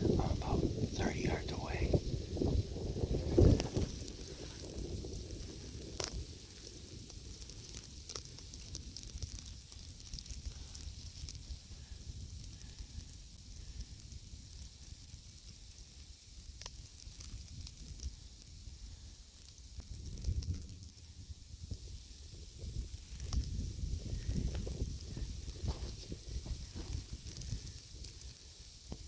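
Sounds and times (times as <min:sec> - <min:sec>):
low wind rumble: 0:00.0 - 0:14.8, 0:17.4 - 0:29.0
snow ticking on microphone: 0:00.0 - 0:29.0.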